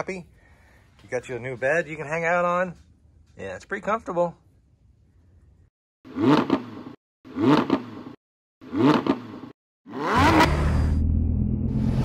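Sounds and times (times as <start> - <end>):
car engine revving: 6.1 - 12.0.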